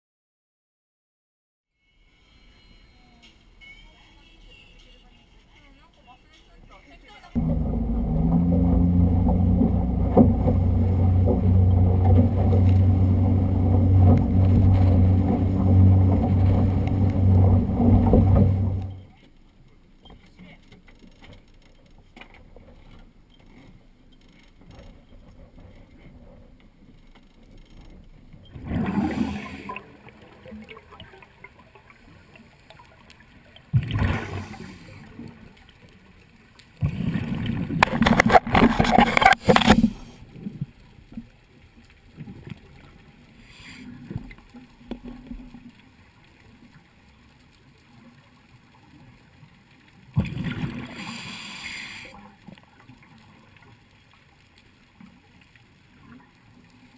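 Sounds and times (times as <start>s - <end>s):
faint steady background noise: 1.8s - 9.4s
water gurgling and bubbling: 7.4s - 19.1s, 28.4s - 32.1s, 33.7s - 35.5s, 36.8s - 40.7s, 50.1s - 51.7s.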